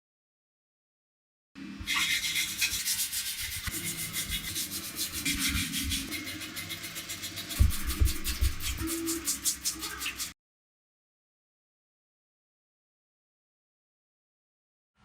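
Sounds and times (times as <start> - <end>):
abrasive rubbing strokes: 1.9 - 10.3.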